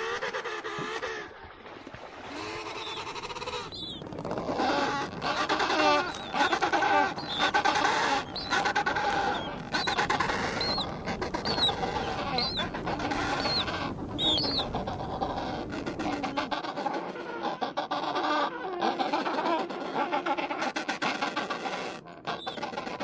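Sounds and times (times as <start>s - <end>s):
penguins calling: 2.3s - 16.6s, 19.1s - 23.0s.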